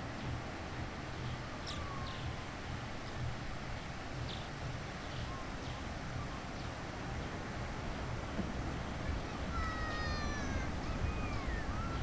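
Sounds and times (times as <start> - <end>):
wind rumble on microphone: 0.0 - 12.0
faint distant high calls: 1.5 - 2.5.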